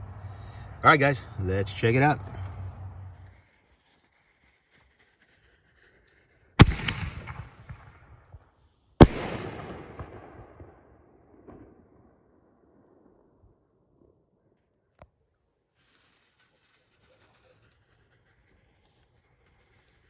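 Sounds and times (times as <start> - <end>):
firework shell booms: 6.6 - 8.0, 9.0 - 10.8
echoing rumble: 9.0 - 12.1.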